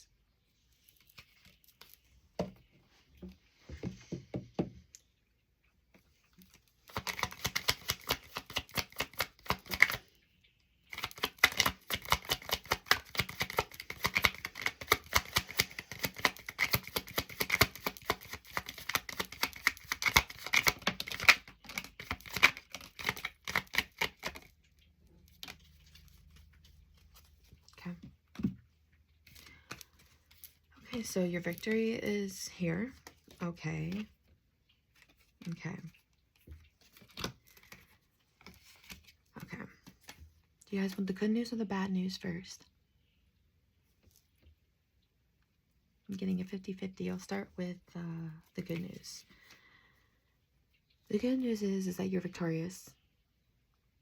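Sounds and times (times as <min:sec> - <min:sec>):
cards being shuffled: 0:06.5 - 0:10.0, 0:10.9 - 0:24.6, 0:34.9 - 0:40.3.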